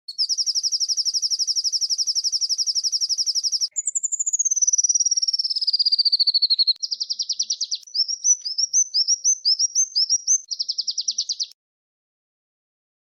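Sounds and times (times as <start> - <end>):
songbird rapid trill: 0.1 - 11.5.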